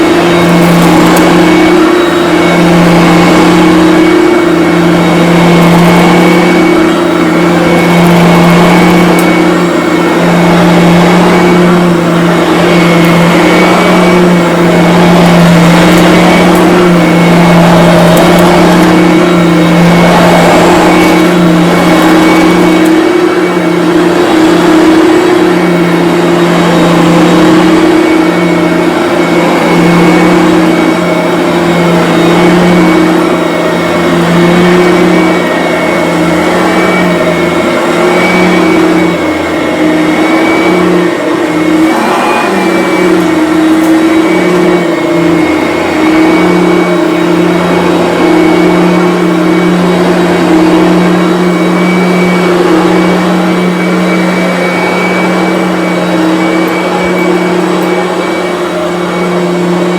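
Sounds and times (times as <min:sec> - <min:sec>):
vacuum cleaner running on carpet: 0:00.0 - 0:59.9.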